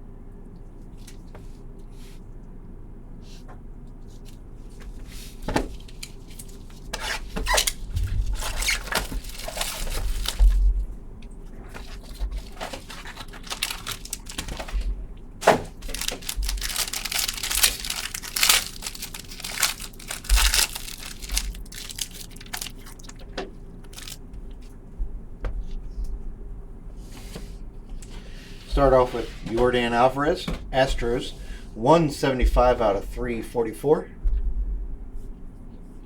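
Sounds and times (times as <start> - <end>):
wrapper crinkling and tearing: 5.8 - 10.8, 11.7 - 24.2.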